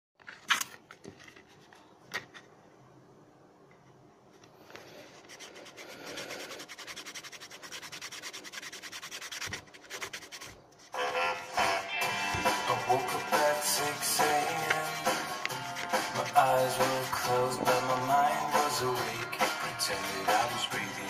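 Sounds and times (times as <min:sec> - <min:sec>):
rubbing or scraping strokes: 0:04.3 - 0:21.0.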